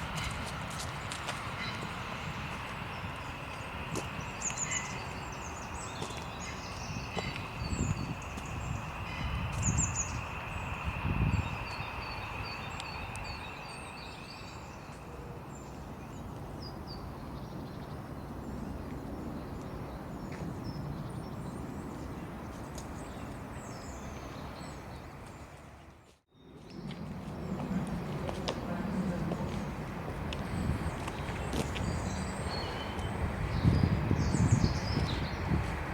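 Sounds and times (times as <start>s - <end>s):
steady outdoor hiss: 0.0s - 35.9s
small birds chirping: 0.1s - 25.6s, 30.4s - 35.8s.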